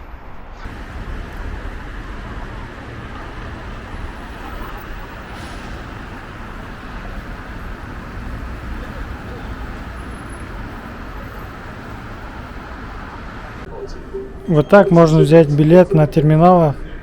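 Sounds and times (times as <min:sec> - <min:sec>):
rumble of passing vehicles: 0:00.6 - 0:14.1.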